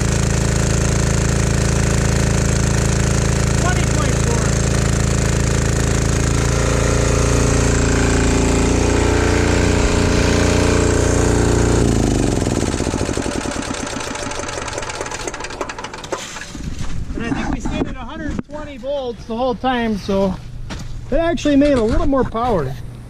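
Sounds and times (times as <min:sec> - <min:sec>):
diesel generator running: 0:00.0 - 0:17.3.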